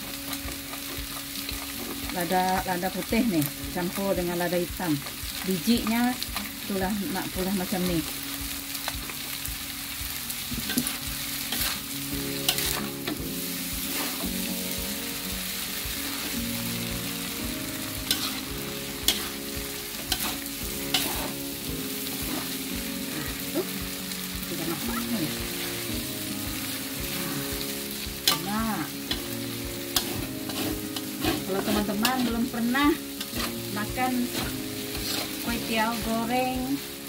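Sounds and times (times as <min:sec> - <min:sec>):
noodles sizzling in pan: 0:00.0 - 0:37.0
spatula scraping pan: 0:13.8 - 0:14.4, 0:18.0 - 0:22.7, 0:27.0 - 0:36.0.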